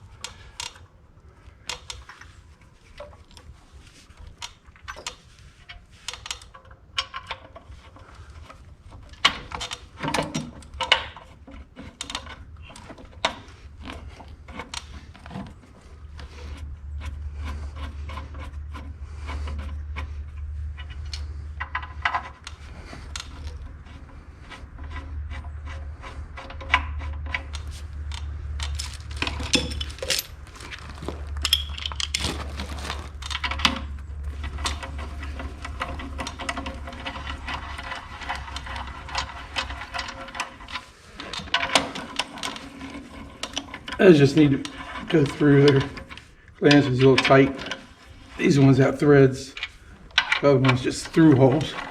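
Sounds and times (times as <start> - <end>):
tools clinking against metal: 28.6 - 32.3.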